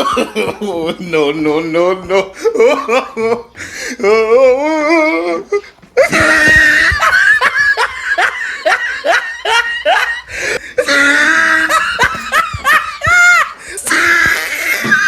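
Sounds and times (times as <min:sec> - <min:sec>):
person laughing loudly: 0:06.0 - 0:14.8.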